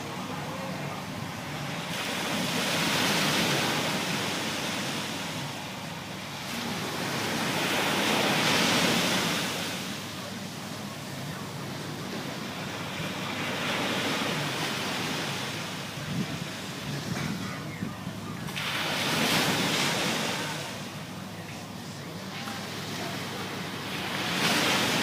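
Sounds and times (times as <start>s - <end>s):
water rushing past a boat: 0.0s - 25.0s
wind on microphone: 15.9s - 20.1s.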